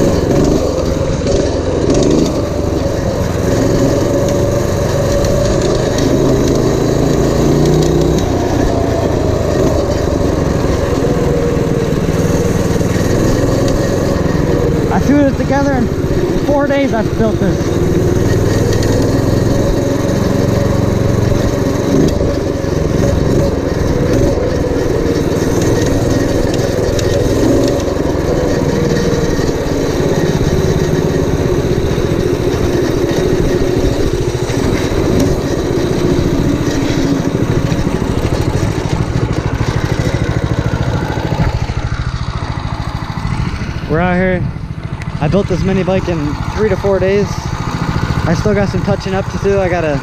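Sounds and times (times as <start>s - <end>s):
small engine running: 0.0s - 50.0s.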